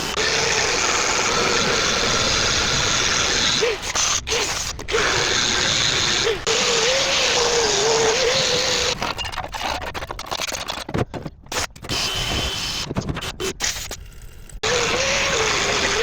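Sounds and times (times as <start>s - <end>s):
angle grinder grinding metal: 0.0s - 9.2s, 14.6s - 16.0s.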